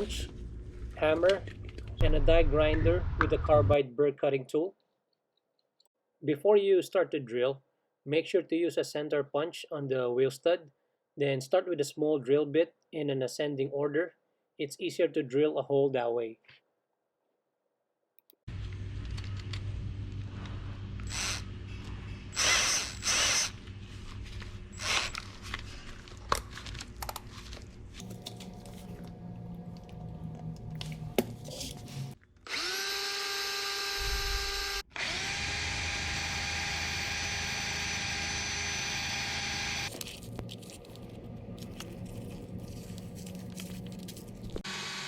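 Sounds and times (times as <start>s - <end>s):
power drill boring into steel: 21.0s - 21.5s, 22.3s - 23.6s, 24.7s - 25.2s, 32.5s - 39.9s, 44.6s - 45.0s.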